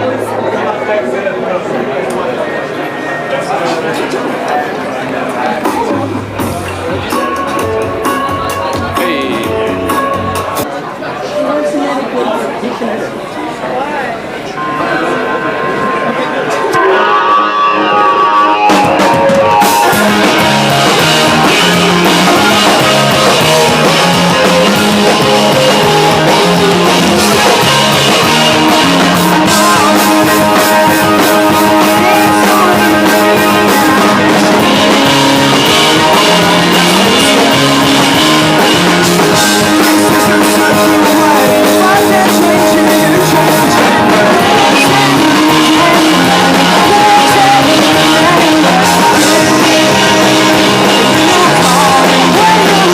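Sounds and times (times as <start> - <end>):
drums: 2.2 - 11.2, 13.1 - 52.9
rock band playing: 2.4 - 10.8, 14.2 - 52.9
electric guitar: 14.4 - 52.9
bass line: 15.8 - 52.9.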